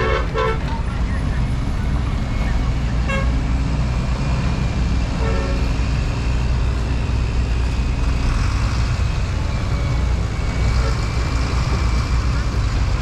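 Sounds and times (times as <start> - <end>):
vehicle horn toot: 0.0 - 0.7, 3.0 - 3.4, 5.2 - 5.6
road traffic rumble: 0.0 - 13.0.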